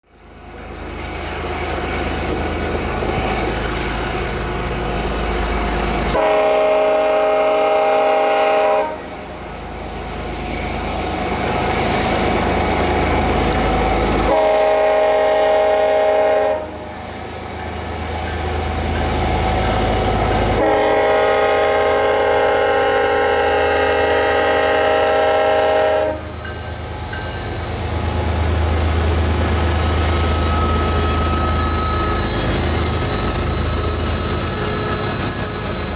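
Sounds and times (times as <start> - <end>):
diesel locomotives rumbling: 0.1 - 35.9
multi-tone air horn blasts: 6.2 - 9.0, 14.3 - 16.8, 20.6 - 26.3.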